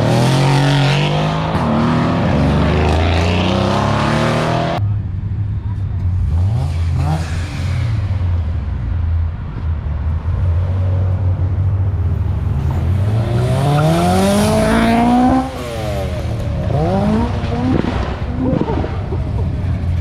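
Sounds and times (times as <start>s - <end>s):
car engine revving: 0.0s - 4.8s, 12.5s - 20.0s.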